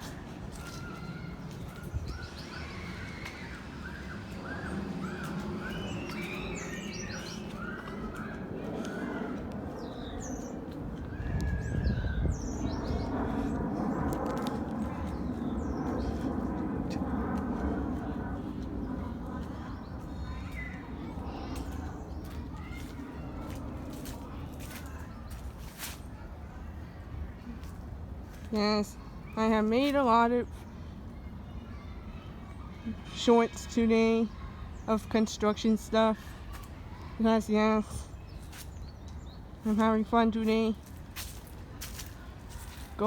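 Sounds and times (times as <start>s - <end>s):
small birds chirping: 0.0s - 17.1s, 18.5s - 26.0s, 34.2s - 43.0s.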